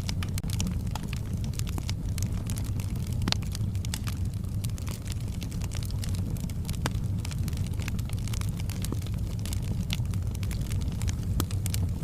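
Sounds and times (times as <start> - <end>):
flames rumbling: 0.0 - 12.0
wood crackling and popping: 0.0 - 12.0.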